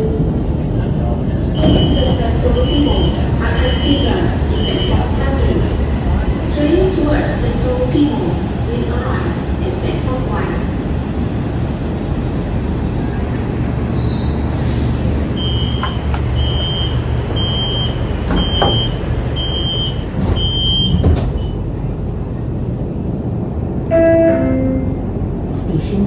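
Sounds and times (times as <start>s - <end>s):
train cabin low rumble: 0.0s - 26.0s
onboard announcement: 0.5s - 11.1s, 15.3s - 20.9s, 23.8s - 26.0s
high door warning beeps: 1.6s - 5.5s, 15.4s - 21.5s.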